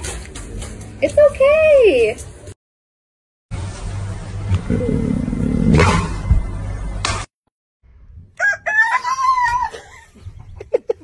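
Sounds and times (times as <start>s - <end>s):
rooster crowing: 8.4s - 9.8s.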